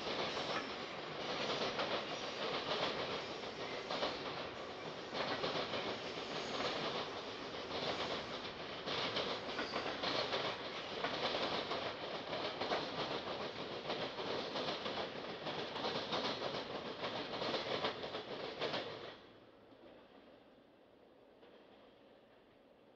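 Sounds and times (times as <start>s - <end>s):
freight train wheels rumbling: 0.0s - 19.3s.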